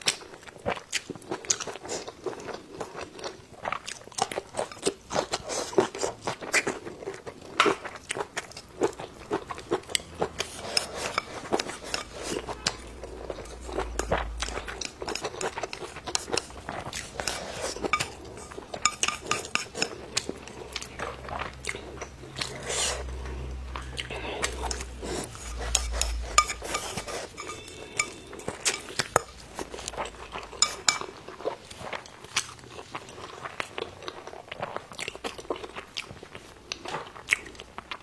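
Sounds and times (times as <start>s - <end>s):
chewing and crunching: 0.0s - 38.0s
utensils clinking against dishes: 4.6s - 6.0s, 8.8s - 32.8s.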